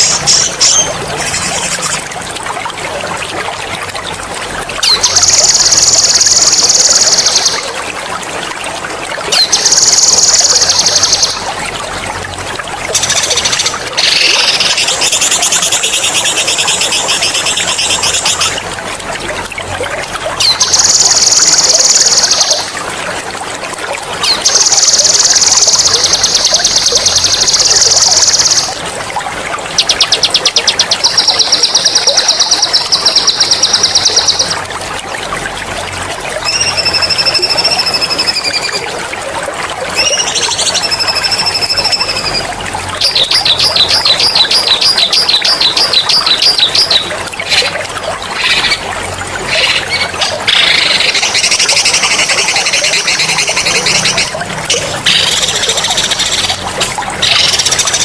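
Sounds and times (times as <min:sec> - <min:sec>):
songbirds trilling and whistling: 0:00.0 - 0:02.1, 0:04.8 - 0:07.8, 0:09.3 - 0:11.6, 0:12.9 - 0:18.6, 0:20.4 - 0:22.8, 0:24.2 - 0:28.8, 0:36.4 - 0:38.9, 0:39.9 - 0:58.0
running water trickling: 0:00.0 - 0:58.0.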